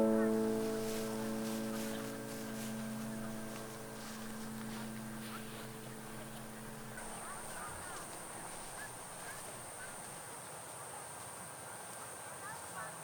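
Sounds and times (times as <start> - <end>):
birds chirping: 0.0 - 10.0
low steady hum: 0.0 - 10.0.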